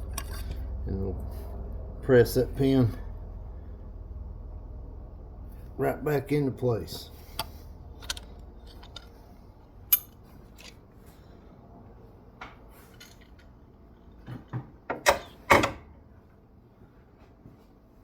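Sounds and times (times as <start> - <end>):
metal clicks and clinks: 0.0 - 0.6, 7.4 - 9.2, 9.9 - 10.8
metal clanks: 0.0 - 0.7, 7.3 - 9.3, 9.9 - 10.8.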